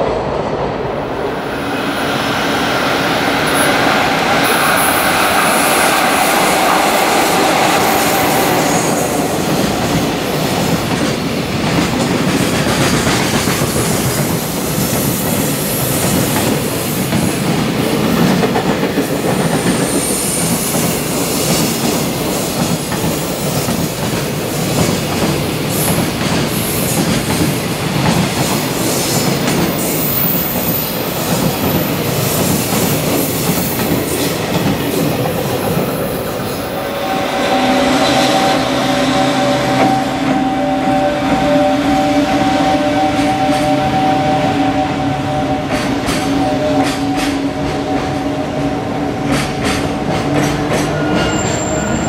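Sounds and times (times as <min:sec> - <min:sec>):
electric locomotive whine: 0:00.0 - 0:52.0
high wheel squeals: 0:50.9 - 0:52.0.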